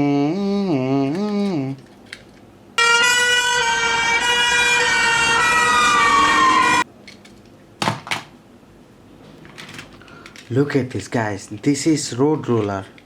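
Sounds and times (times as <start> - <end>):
toy siren sliding tone: 2.8 - 6.8.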